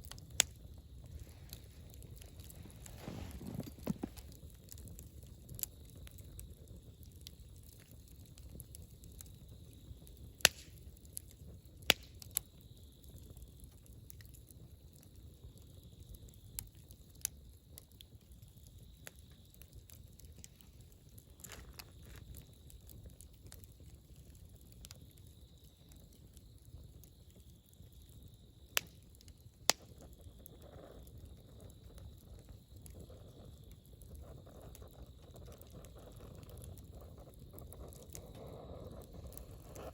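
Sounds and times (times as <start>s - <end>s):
sharp fire pops: 0.0s - 14.4s, 18.6s - 23.7s, 28.6s - 39.9s
campfire crackling: 0.0s - 39.9s.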